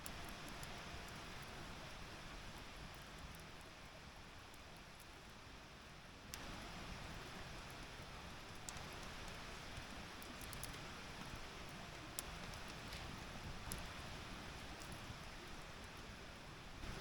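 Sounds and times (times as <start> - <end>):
campfire hissing: 0.0 - 17.0
burning wood crackling pops: 7.6 - 16.1.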